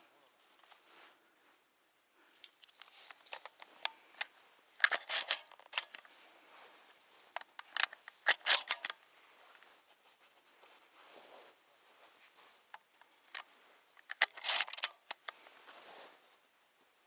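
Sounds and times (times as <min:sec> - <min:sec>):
handling clicks and rustles: 0:02.6 - 0:06.3, 0:07.1 - 0:09.7, 0:12.1 - 0:15.8.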